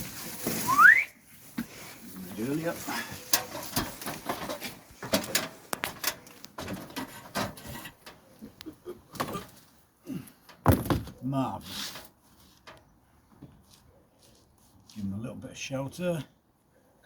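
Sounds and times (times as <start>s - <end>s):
plastic sheet rustling: 0.0s - 5.2s.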